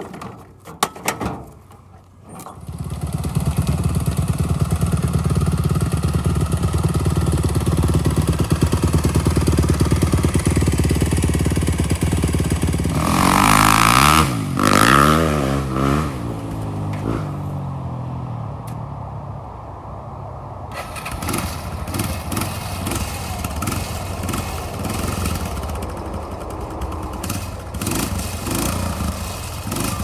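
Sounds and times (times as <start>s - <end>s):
vehicle engine running: 2.5s - 14.8s, 20.7s - 30.0s
engine revving: 2.6s - 17.6s, 20.7s - 30.0s.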